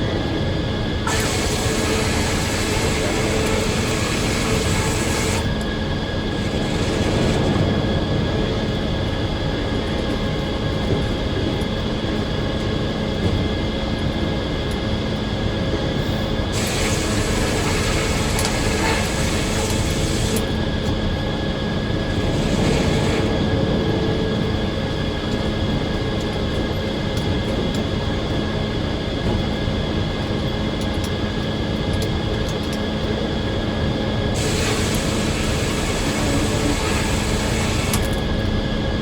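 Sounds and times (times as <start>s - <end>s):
circular sawmill running: 1.0s - 10.7s, 15.6s - 28.3s, 33.0s - 39.0s.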